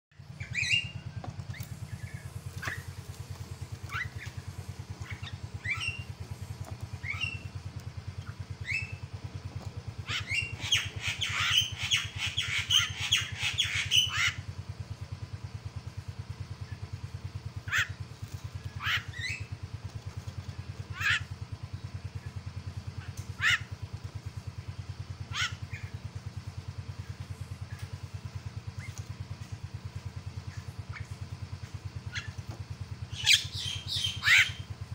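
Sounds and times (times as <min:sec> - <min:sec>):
steady low hum: 0:00.1 - 0:34.9
myna calling: 0:01.5 - 0:07.6, 0:17.6 - 0:18.0, 0:20.9 - 0:21.3, 0:23.4 - 0:23.7, 0:25.3 - 0:26.0, 0:33.1 - 0:34.7.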